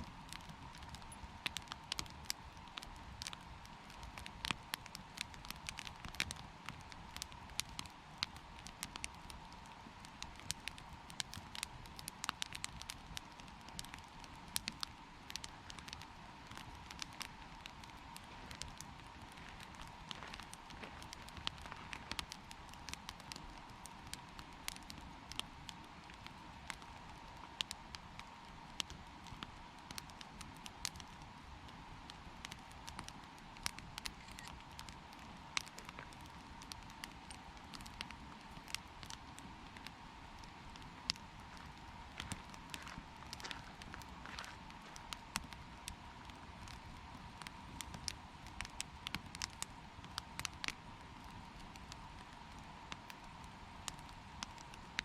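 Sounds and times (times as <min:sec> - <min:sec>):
campfire crackling and popping: 0:00.0 - 0:55.0
faint steady tone: 0:34.0 - 0:34.7.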